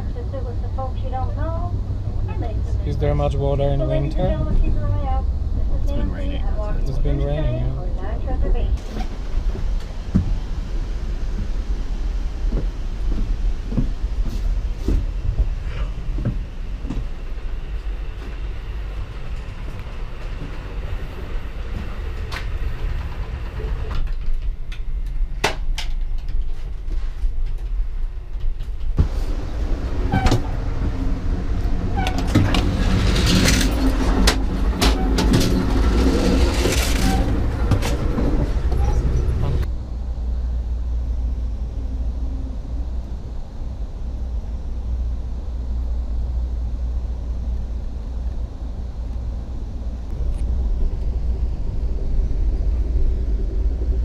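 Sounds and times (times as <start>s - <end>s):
train rumbling on rails: 0.0s - 54.0s
rattling and clicking clatter: 19.2s - 29.0s, 31.8s - 39.7s.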